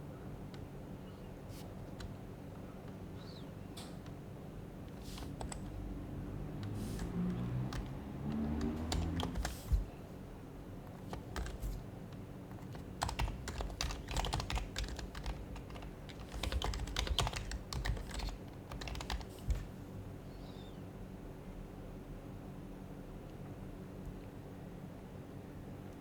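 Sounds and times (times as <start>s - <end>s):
soft keyboard keystrokes: 1.4s - 4.2s, 4.8s - 5.8s, 6.5s - 10.0s, 10.8s - 19.8s.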